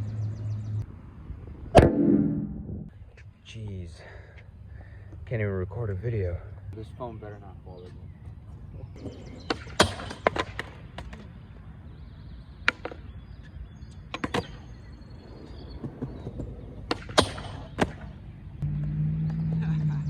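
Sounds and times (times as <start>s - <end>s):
steady low rumble: 0.7s - 6.9s
skateboard clacks and impacts: 9.5s - 11.3s, 14.1s - 14.8s, 15.8s - 18.2s.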